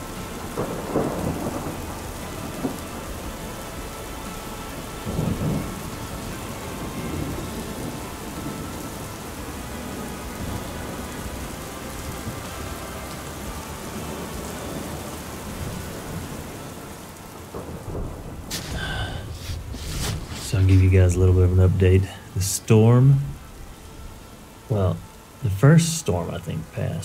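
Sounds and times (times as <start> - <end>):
low rumble of thunder: 0.0 - 11.3, 13.4 - 22.3
heavy rain pouring: 0.0 - 27.0.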